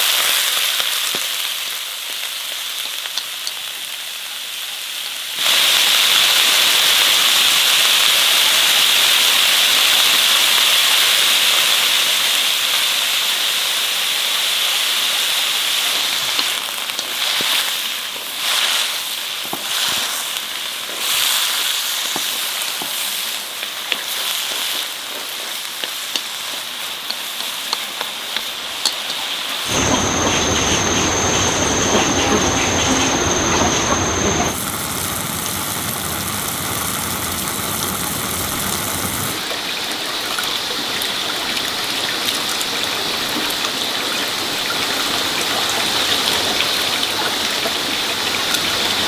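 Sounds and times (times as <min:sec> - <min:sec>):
food sizzling in hot fat: 0:00.0 - 0:12.0, 0:12.8 - 0:39.5
full rumbling sound: 0:29.7 - 0:39.4.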